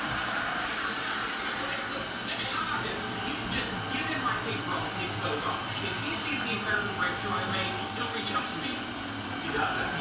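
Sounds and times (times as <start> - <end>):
robot vacuum whirring: 2.0 - 10.0.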